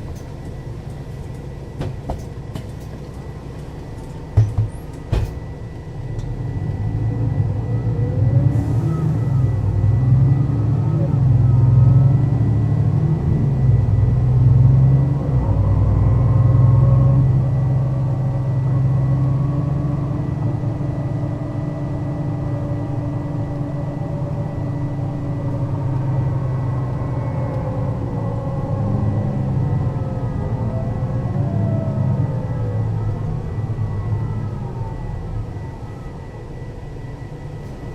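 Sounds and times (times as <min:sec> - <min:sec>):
bus diesel engine driving: 0:00.0 - 0:37.9
thin steady whine: 0:16.9 - 0:37.9.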